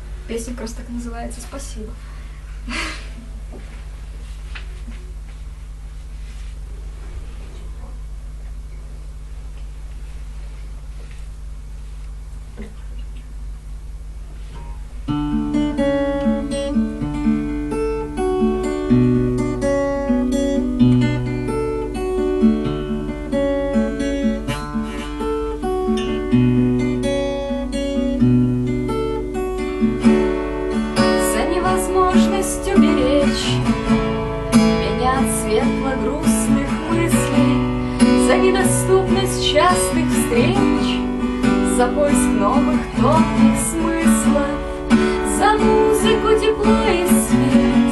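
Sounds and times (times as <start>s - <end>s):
acoustic guitar playing: 14.4s - 47.9s.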